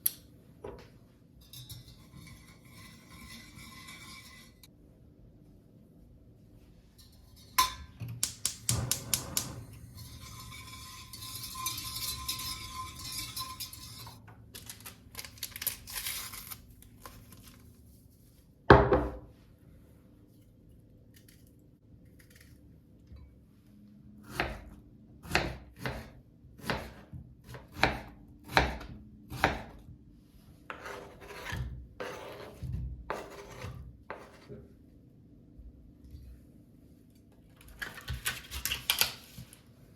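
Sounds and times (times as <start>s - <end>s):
dishes and utensils clattering: 8.7s - 14.2s
knife on cutting board: 30.7s - 34.5s.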